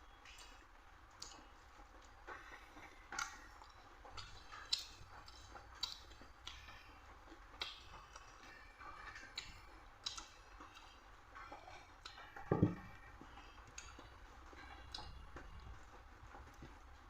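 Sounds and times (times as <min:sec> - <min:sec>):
person chewing food: 0:00.2 - 0:16.9.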